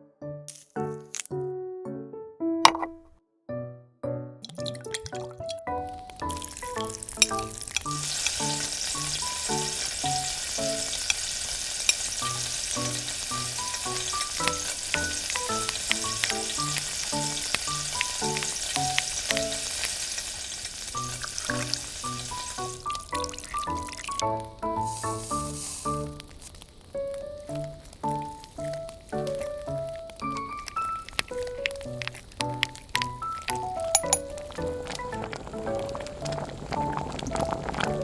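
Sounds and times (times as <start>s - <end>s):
food sizzling in hot oil: 4.4s - 38.0s
light background music: 12.2s - 19.8s, 21.0s - 26.3s.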